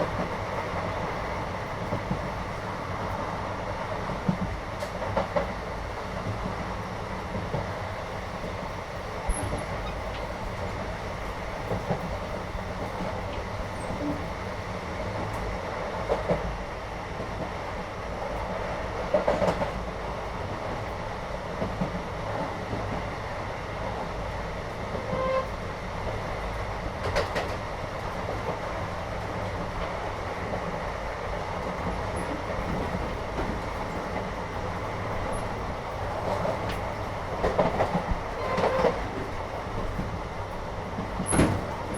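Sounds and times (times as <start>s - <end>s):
train carriage rumbling: 0.0s - 41.9s.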